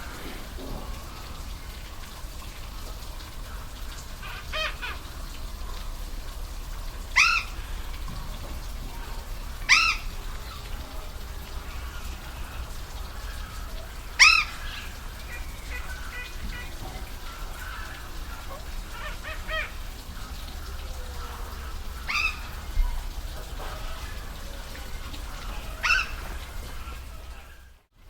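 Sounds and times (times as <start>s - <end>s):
waterfall rushing: 0.0s - 27.9s
animal call: 9.6s - 10.2s, 23.6s - 27.6s.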